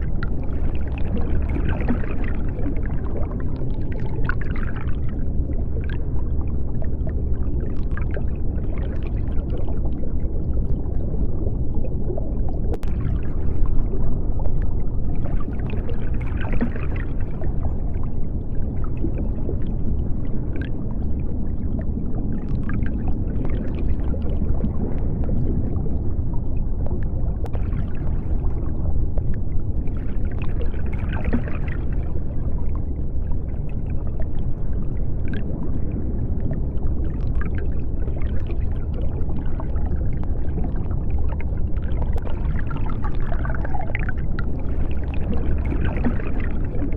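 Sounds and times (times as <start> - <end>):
bubbling: 0.0 - 46.9
low underwater rumble: 0.0 - 46.9.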